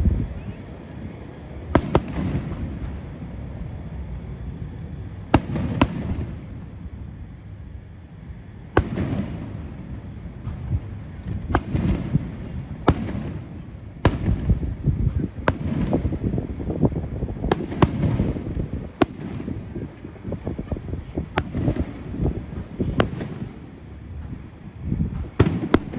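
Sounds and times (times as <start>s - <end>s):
continuous low rumble: 0.0s - 25.9s
firework shells bursting: 8.7s - 25.9s.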